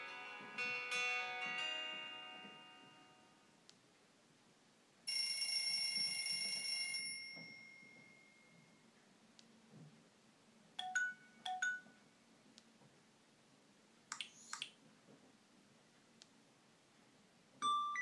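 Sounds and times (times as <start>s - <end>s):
phone alarm chime: 5.1s - 8.6s.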